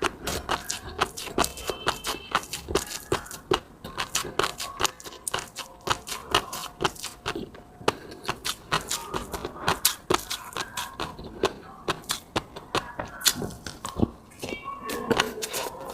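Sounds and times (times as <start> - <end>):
sharp mouth clicks: 0.0 - 15.8
wet chewing and lip smacks: 0.0 - 15.9.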